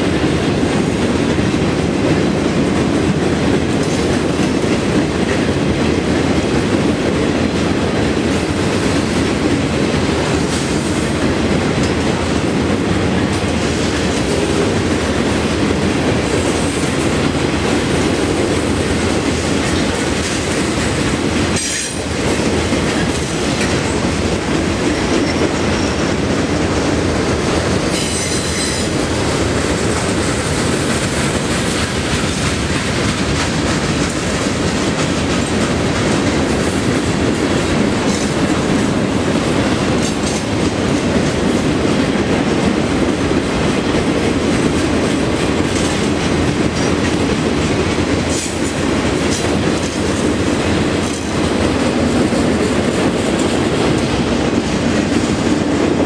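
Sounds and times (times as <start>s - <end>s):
freight train rumbling past: 0.0s - 56.0s
wheels clicking over rail joints: 0.2s - 56.0s
high-pitched wheel squeal: 28.0s - 28.9s.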